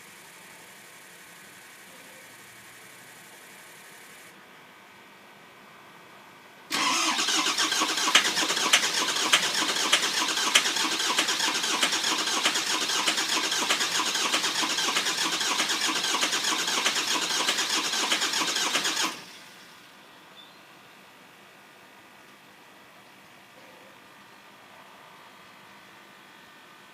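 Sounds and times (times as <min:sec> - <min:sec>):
diesel engine cranking: 0:06.7 - 0:19.6.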